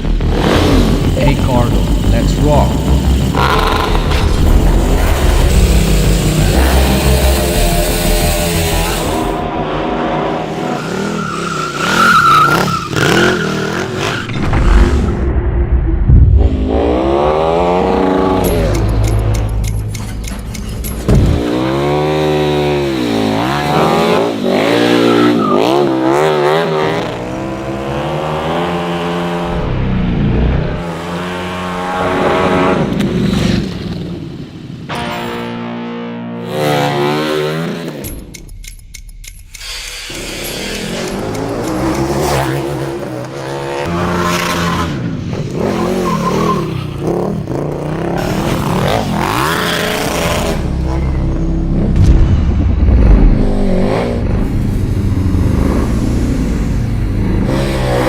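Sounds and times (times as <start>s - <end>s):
motorcycle engine revving: 0.0s - 15.3s, 16.2s - 34.3s, 35.8s - 38.3s, 39.8s - 58.0s
sharp thump: 14.3s - 16.8s, 21.0s - 21.5s, 51.9s - 54.6s.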